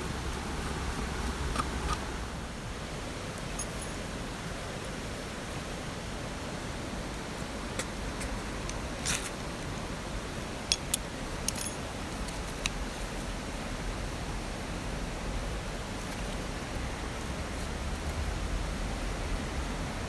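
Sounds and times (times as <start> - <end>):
small gear clicking: 10.7 - 12.8.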